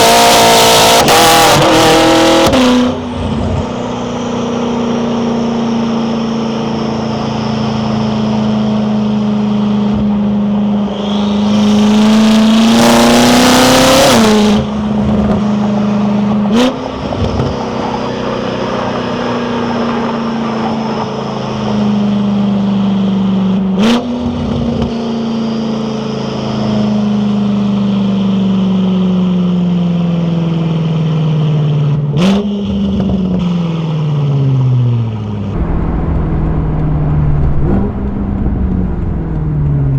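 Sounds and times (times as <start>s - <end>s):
car engine revving: 0.0s - 22.6s, 34.8s - 39.9s
exhaust cracks: 35.5s - 39.9s.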